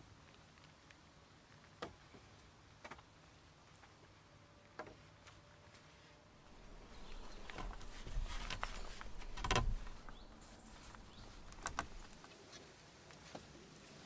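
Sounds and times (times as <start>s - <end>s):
rustling handling noise: 5.3s - 14.0s.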